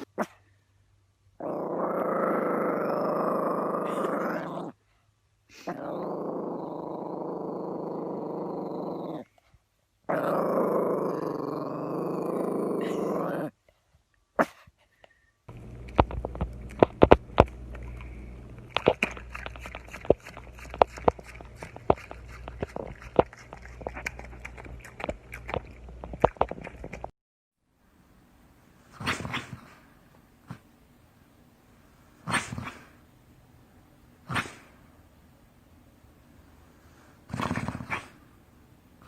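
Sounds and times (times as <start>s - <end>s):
dog growling: 1.4s - 4.8s, 5.5s - 9.3s, 10.1s - 13.5s, 15.5s - 27.1s, 37.3s - 38.2s.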